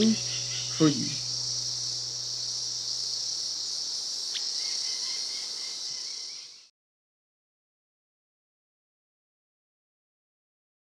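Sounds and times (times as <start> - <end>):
insects trilling: 0.0 - 6.7.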